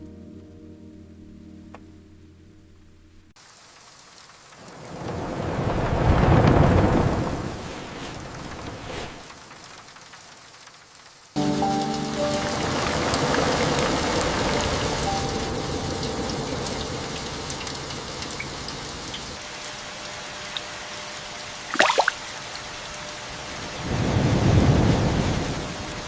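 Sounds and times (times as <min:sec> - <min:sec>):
steady rain falling: 0:03.3 - 0:26.0
low thunder rumble: 0:04.7 - 0:09.3, 0:23.8 - 0:26.0
thunder crack: 0:04.7 - 0:09.3.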